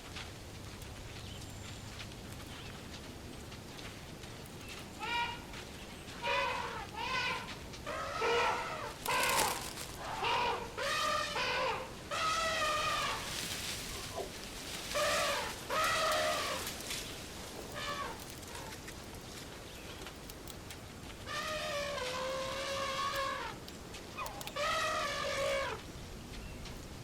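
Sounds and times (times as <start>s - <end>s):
short wavering animal calls: 6.2s - 14.2s, 14.9s - 16.8s, 17.7s - 18.8s, 21.2s - 23.6s, 24.2s - 25.8s.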